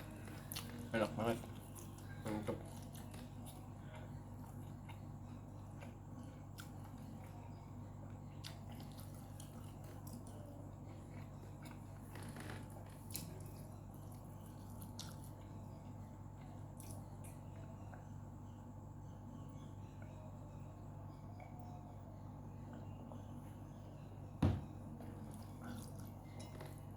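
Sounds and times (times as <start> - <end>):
wet chewing and mouth smacks: 13.0 - 15.4.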